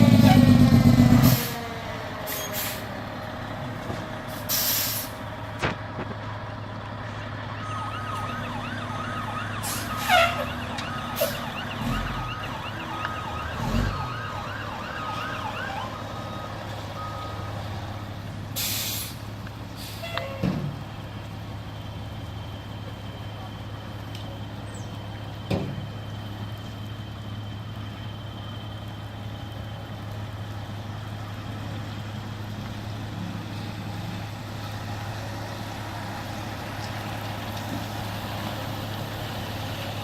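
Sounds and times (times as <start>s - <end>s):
low engine rumble: 0.0s - 40.0s
siren warbling: 7.4s - 17.4s.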